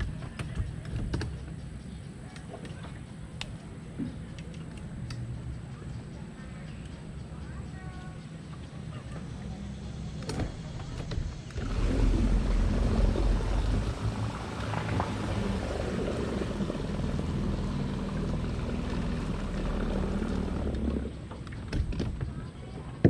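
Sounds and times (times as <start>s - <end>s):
small boat motor running: 5.2s - 22.9s
water and wind hiss: 10.0s - 21.3s.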